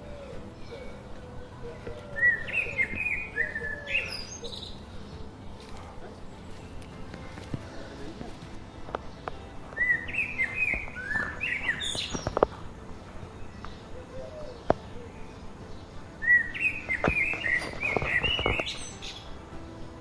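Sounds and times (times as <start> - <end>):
bird singing: 0.0 - 20.0.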